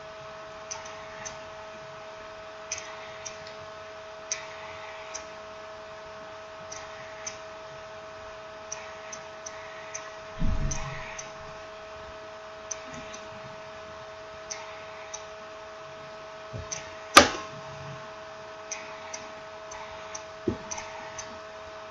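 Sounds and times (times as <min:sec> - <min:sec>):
steady electrical hum: 0:00.0 - 0:21.9
sharp knock: 0:10.4 - 0:11.4
dull bump: 0:10.4 - 0:11.6.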